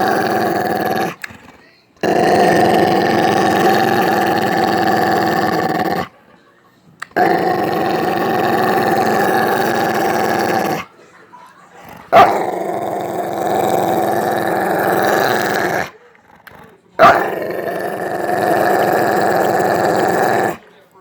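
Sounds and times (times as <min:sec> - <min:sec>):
dog growling: 0:00.0 - 0:06.2, 0:07.0 - 0:10.9, 0:11.8 - 0:20.6.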